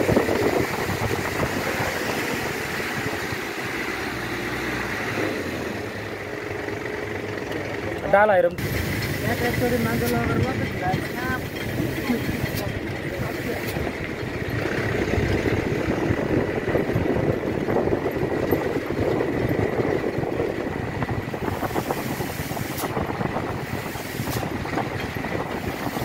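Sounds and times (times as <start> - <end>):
truck engine and road noise: 0.0 - 26.0.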